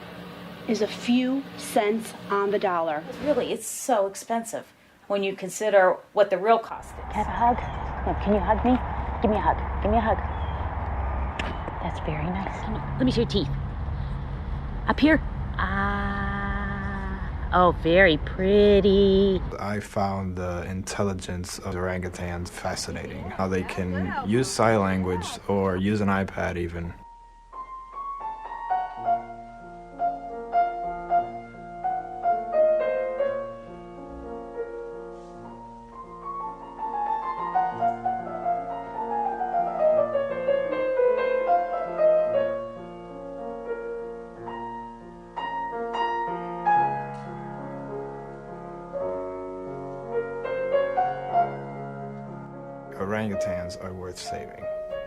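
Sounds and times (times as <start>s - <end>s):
slow piano music: 19.6s - 55.0s.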